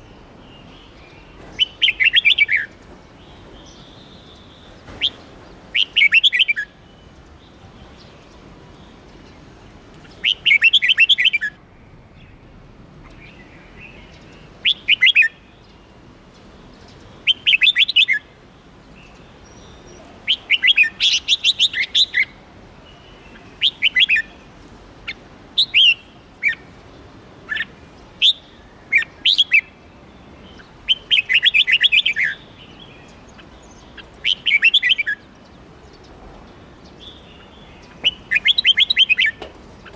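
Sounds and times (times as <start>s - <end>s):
bird warbling song: 25.1s - 39.9s.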